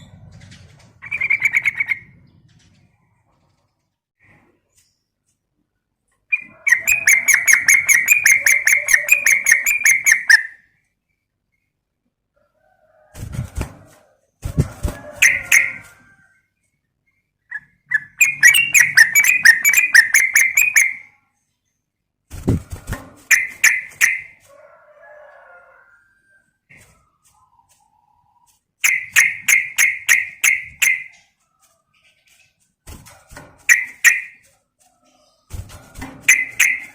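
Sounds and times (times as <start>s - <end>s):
bird chattering call: 6.3s - 10.6s, 17.6s - 21.0s.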